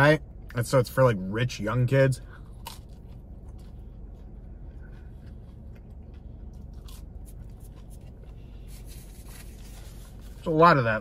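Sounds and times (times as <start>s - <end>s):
low hum: 0.0s - 11.0s
person eating crunches: 2.2s - 10.4s.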